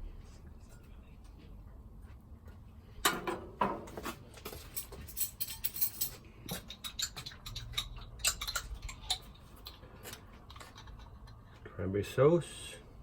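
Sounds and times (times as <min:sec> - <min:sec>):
utensils and food clicking: 0:06.4 - 0:11.6.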